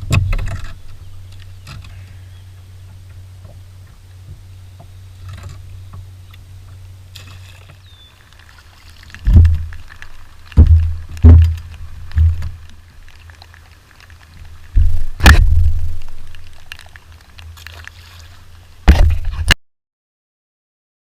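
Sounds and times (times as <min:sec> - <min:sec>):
water sloshing and splashing: 0:00.0 - 0:19.6
low rumble: 0:09.1 - 0:13.3, 0:14.4 - 0:17.4
loud thumps: 0:09.2 - 0:12.6, 0:14.8 - 0:16.4, 0:18.8 - 0:19.6.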